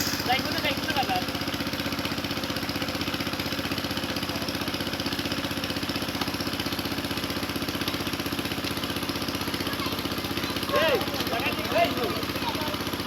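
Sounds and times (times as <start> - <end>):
small engine chugging: 0.0 - 13.0.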